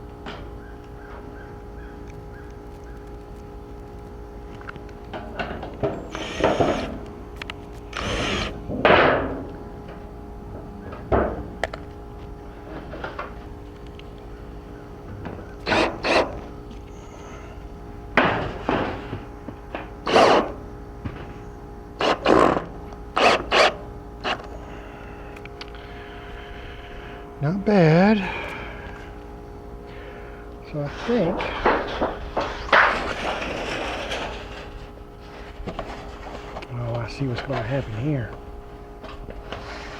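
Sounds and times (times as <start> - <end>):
power drill driving screws: 6.1 - 7.0, 7.9 - 8.6, 15.6 - 16.3, 20.1 - 20.5, 23.2 - 24.4.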